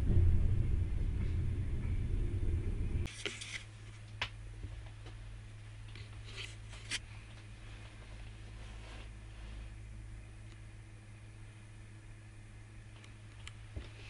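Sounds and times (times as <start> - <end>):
train rumbling on rails: 0.0 - 3.1
quiet steady hum: 0.0 - 14.0.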